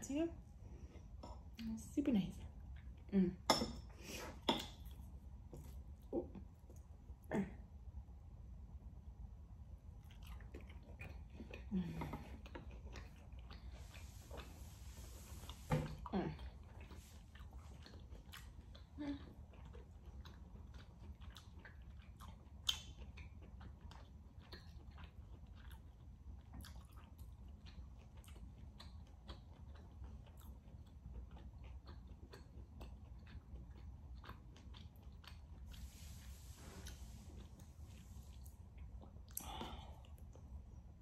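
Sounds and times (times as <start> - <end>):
person chewing with wet mouth clicks: 16.4 - 40.7.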